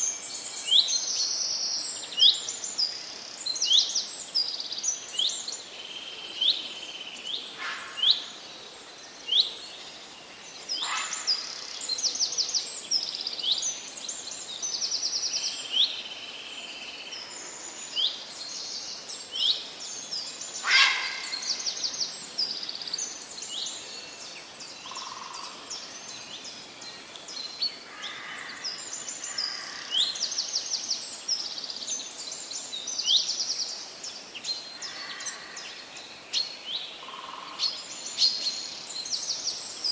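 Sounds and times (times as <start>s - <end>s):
birds calling and trilling: 10.6s - 15.9s, 17.1s - 39.9s.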